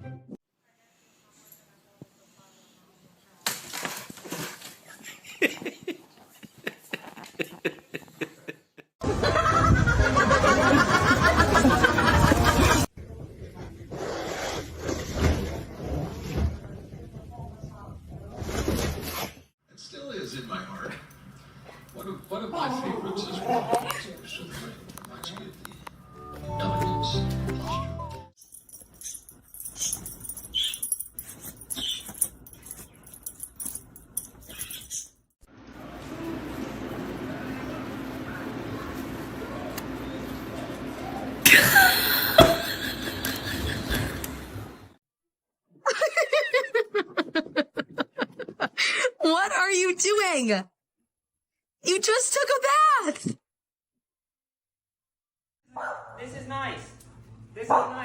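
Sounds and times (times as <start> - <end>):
person laughing: 5.1 - 12.9, 41.5 - 44.4, 45.9 - 49.2
metallic jingling of collar tags: 28.4 - 35.2.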